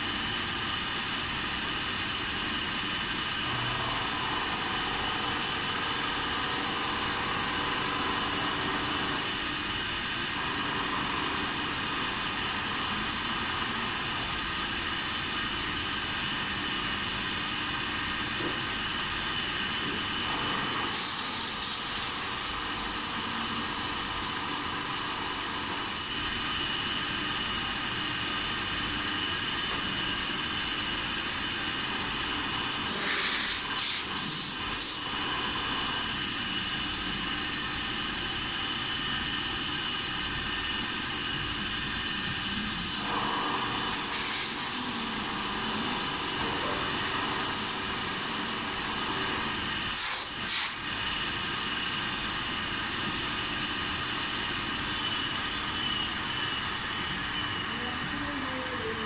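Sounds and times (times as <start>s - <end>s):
milling machine humming: 0.2s - 59.0s
loud hissing bursts: 20.8s - 26.2s, 32.8s - 35.2s, 42.2s - 51.0s.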